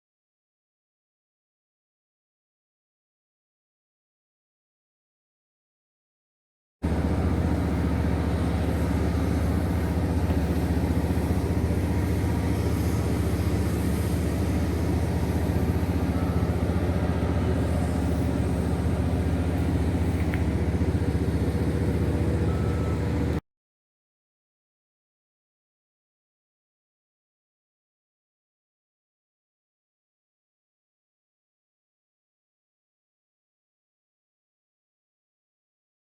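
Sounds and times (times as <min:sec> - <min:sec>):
machinery low hum: 0:06.8 - 0:23.4.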